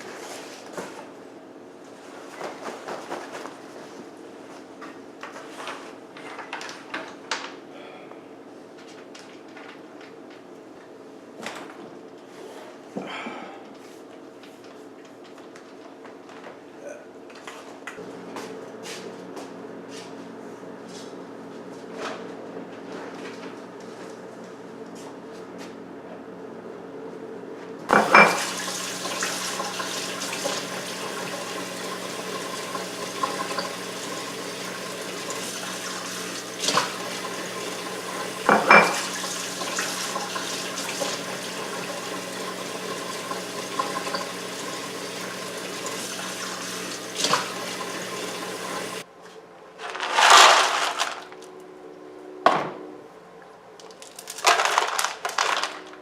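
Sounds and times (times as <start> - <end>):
running water rushing: 27.9 - 49.0.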